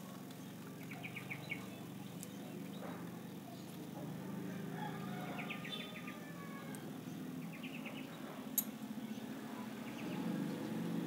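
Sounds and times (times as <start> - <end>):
bird chirping: 0.3 - 4.6, 5.2 - 11.0.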